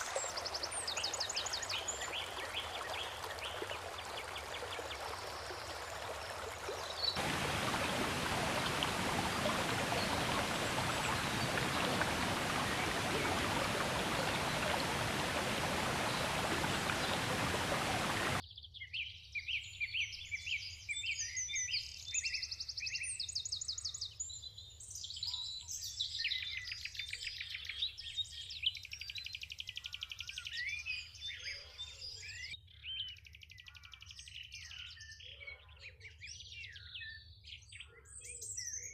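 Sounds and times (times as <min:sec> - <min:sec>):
creek water flowing: 0:00.0 - 0:18.4
songbirds singing: 0:00.0 - 0:22.7.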